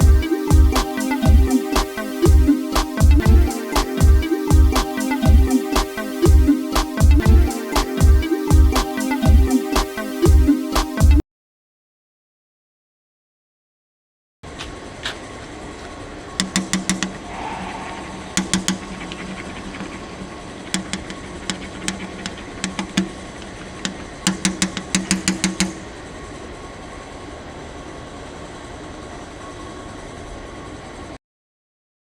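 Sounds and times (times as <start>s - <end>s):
steady train rumble: 17.2s - 23.7s.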